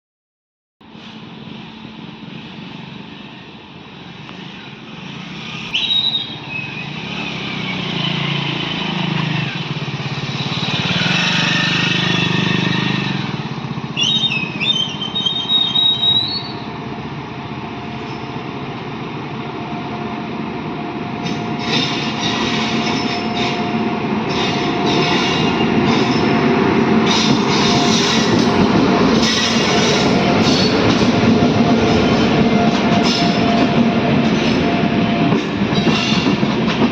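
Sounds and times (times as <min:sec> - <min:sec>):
train running on track: 0:00.8 - 0:36.9
wheels clattering over rails: 0:24.3 - 0:36.9.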